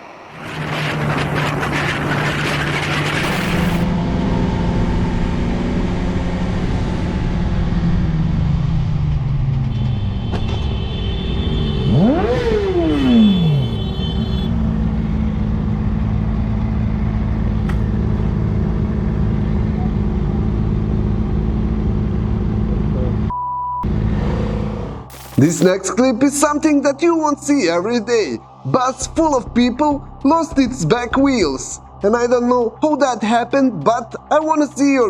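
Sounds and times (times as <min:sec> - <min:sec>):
motorcycle engine revving: 0:00.0 - 0:10.7, 0:11.3 - 0:23.3
high steady tone: 0:25.1 - 0:25.7.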